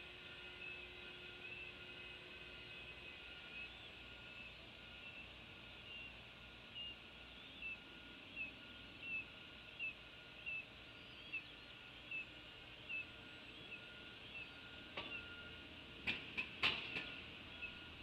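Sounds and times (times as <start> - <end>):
bird chirping: 2.7 - 15.6, 16.7 - 18.0.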